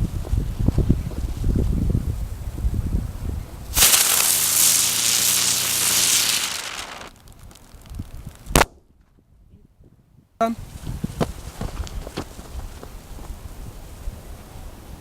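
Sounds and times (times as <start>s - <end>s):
firework hissing: 3.7s - 8.6s
sharp crack: 3.8s - 8.8s.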